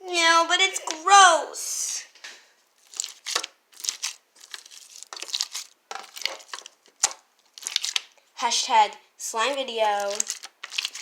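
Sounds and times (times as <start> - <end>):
slime squelching by hand: 2.7 - 11.0.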